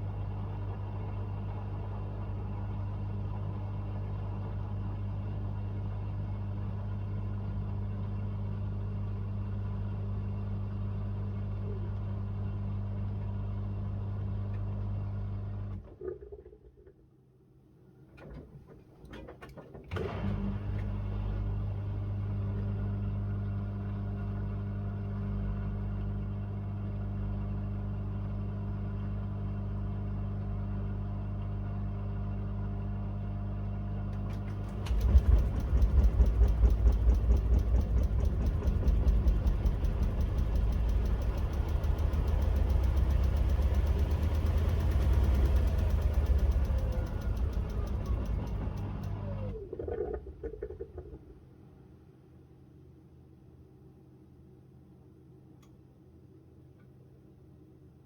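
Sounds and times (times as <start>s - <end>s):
washing machine hum: 18.1s - 29.2s, 33.8s - 51.7s
washing machine drum churning: 34.3s - 49.2s
falling whine of drum slowing: 34.7s - 44.7s.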